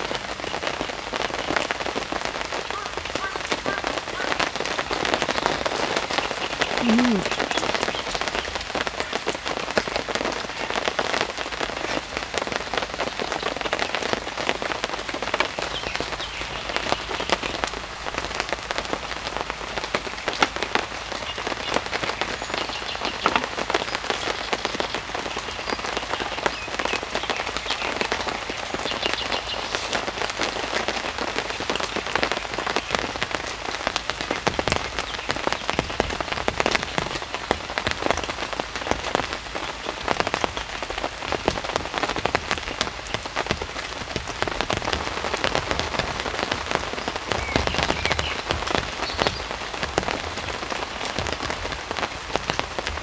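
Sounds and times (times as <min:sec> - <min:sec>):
steady rain in a forest: 0:00.0 - 0:53.0.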